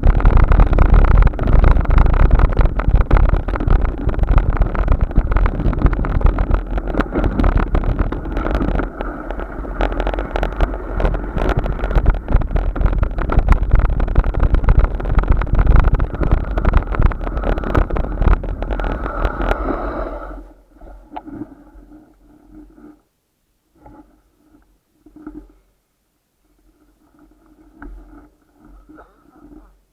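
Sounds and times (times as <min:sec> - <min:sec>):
wind buffeting microphone: 0:00.0 - 0:20.1.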